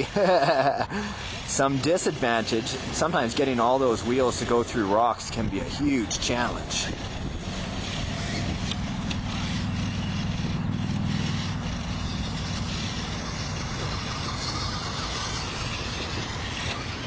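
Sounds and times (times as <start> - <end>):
rc truck electric motor drone: 0.0 - 17.0
rc truck grinding over rocks: 0.0 - 17.0.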